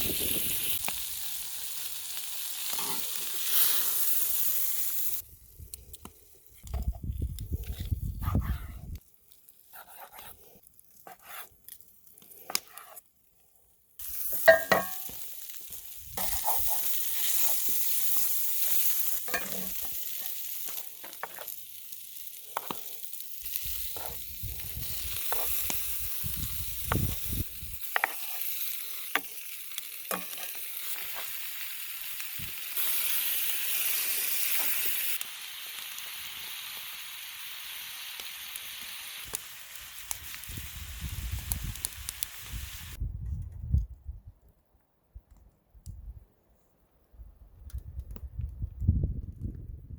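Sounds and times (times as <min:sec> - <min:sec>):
food sizzling in a pan: 0:00.0 - 0:05.3, 0:14.0 - 0:43.0.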